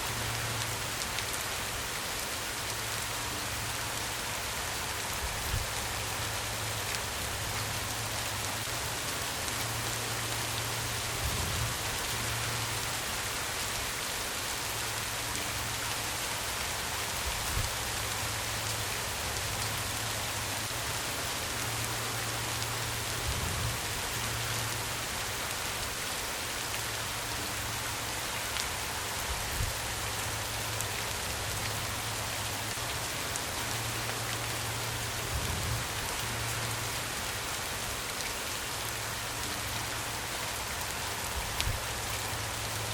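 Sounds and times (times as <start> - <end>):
rain hissing on a surface: 0.0 - 42.9.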